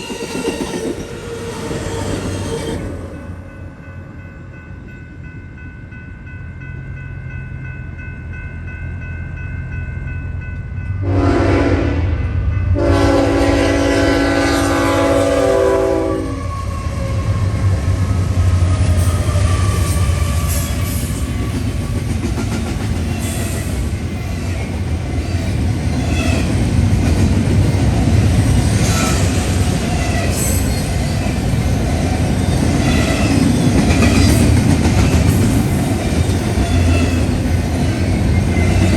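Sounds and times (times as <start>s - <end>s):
freight train rumble: 0.0s - 38.9s
locomotive air horn: 11.0s - 12.2s, 12.8s - 17.0s.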